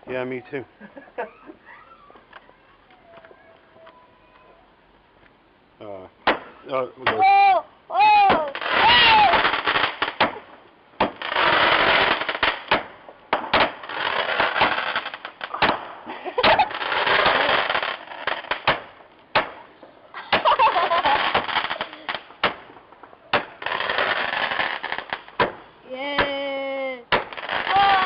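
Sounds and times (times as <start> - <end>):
crackling hiss: 0.0 - 28.0
firework bangs and cracks: 6.2 - 7.3, 8.2 - 26.4, 27.1 - 28.0.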